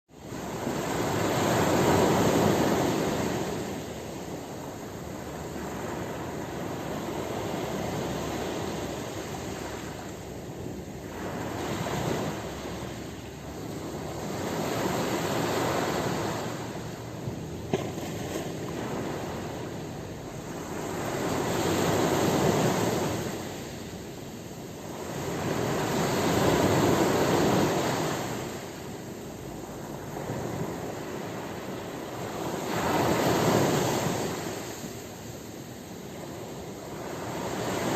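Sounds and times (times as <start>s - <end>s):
waves breaking on shore: 0.1s - 37.9s.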